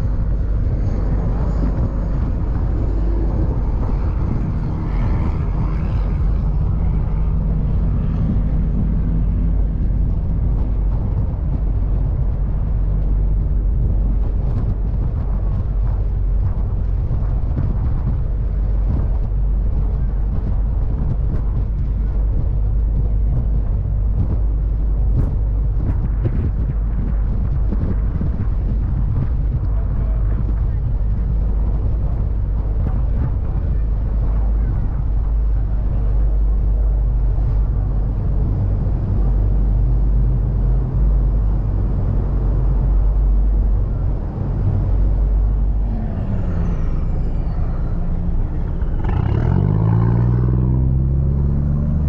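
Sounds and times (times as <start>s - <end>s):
ferry engine droning: 0.0s - 52.0s
faint tones: 43.9s - 51.0s.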